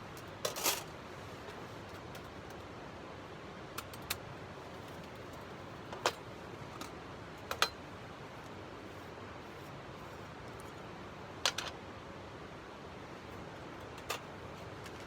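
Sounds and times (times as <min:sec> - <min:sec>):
light sharp clicks and taps: 0:03.8 - 0:04.2.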